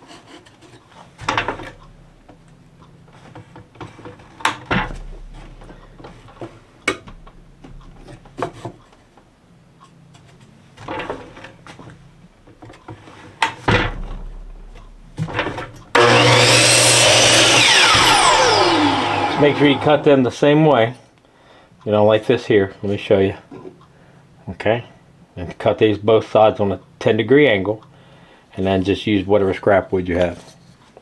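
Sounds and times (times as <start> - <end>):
power saw running: 15.9 - 20.4.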